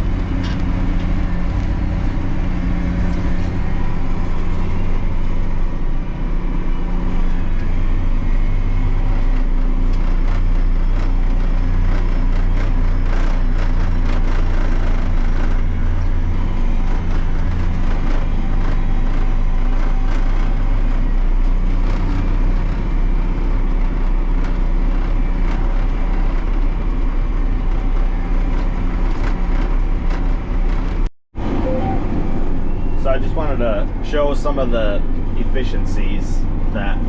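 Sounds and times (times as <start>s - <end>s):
truck engine humming: 0.0s - 37.0s.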